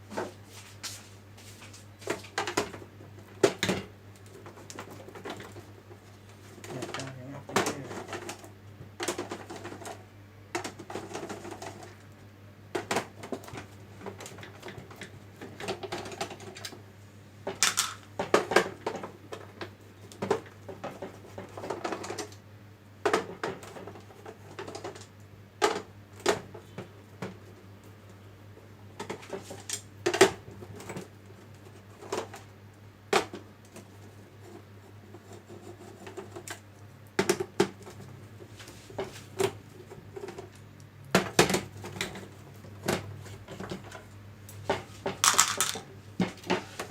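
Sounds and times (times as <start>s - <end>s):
plastic parts clicking and knocking: 17.4s - 22.4s, 44.7s - 46.9s.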